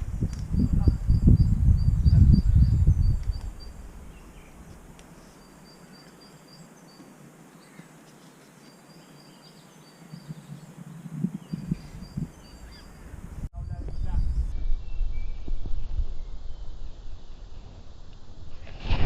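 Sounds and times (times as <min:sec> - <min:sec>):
faint high chirp: 0:05.2 - 0:16.6.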